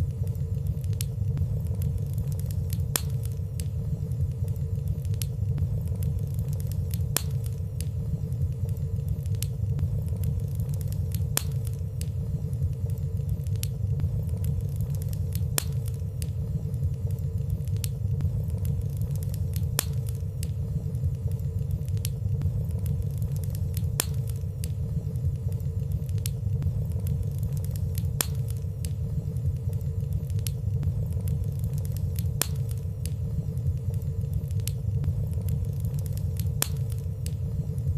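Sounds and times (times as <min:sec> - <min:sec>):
fire crackles: 0:00.0 - 0:37.9
fire rumbling: 0:00.0 - 0:37.9.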